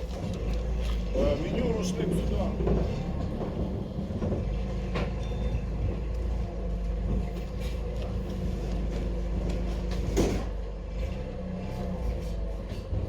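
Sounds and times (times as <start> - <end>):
steady mechanical hum: 0.0 - 13.0
goods knocking and clattering: 2.2 - 6.1.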